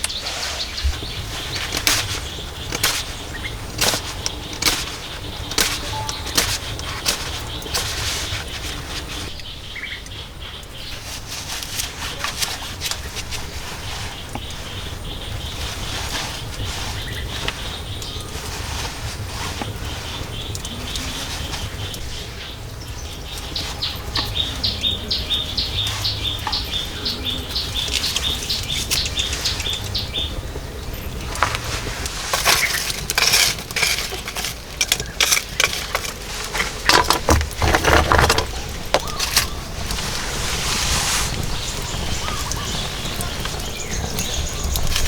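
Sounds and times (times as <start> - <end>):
loud knocks and scrapes: 31.4 - 41.5.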